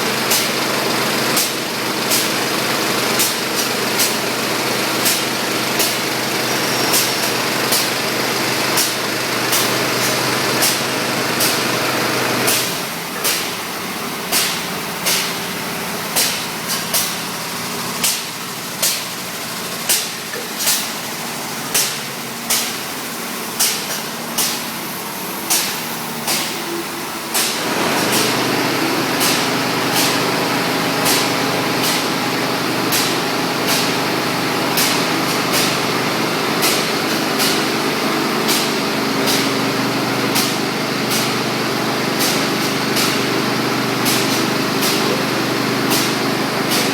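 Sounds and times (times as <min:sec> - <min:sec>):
machinery humming: 0:24.1 - 0:46.9.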